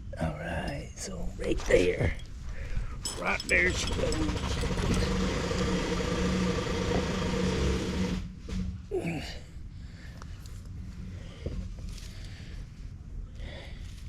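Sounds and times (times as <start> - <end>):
small motor humming: 3.8 - 8.3.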